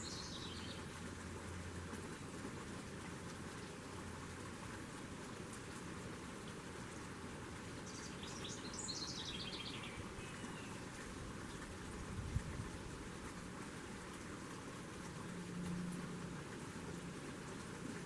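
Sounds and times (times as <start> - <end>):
songbird singing: 0.0 - 1.0, 7.8 - 11.7.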